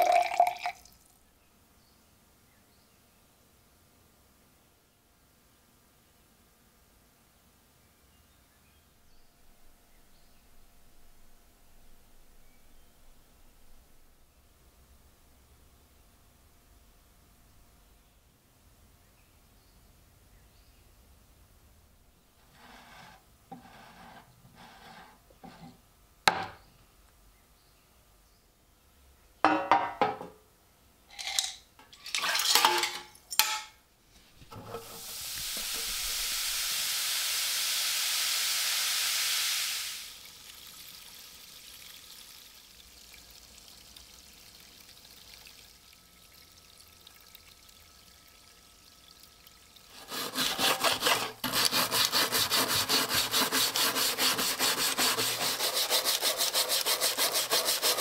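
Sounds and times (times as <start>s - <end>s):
steady hiss: 34.0s - 43.5s
knocks and scrapes: 34.2s - 36.0s
rasping strokes on wood: 49.9s - 58.0s.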